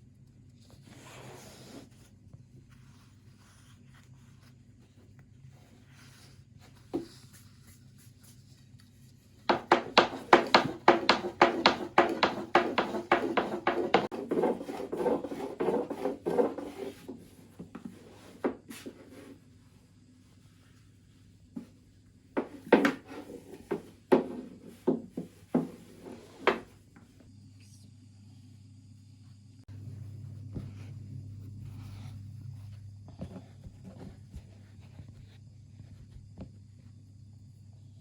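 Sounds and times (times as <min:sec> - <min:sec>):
knocks on wood: 0:09.5 - 0:16.0.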